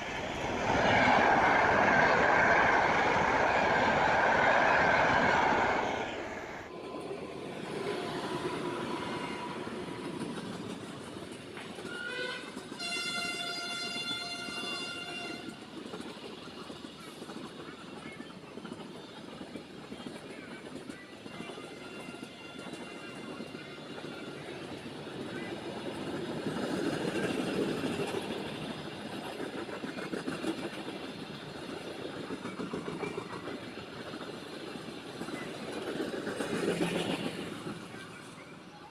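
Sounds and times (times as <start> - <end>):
train rumbling past: 0.0 - 18.0, 18.7 - 38.9
locomotive horn blasts: 11.9 - 15.6.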